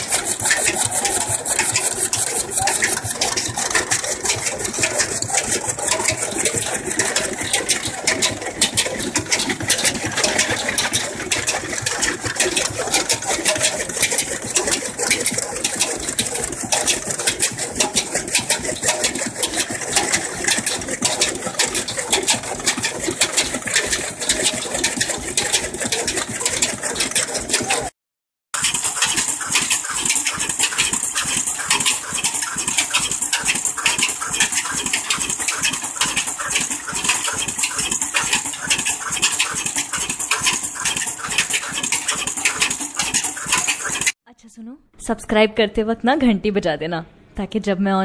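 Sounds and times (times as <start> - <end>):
chaff-cutter engine clattering: 0.0 - 27.9, 28.6 - 44.2.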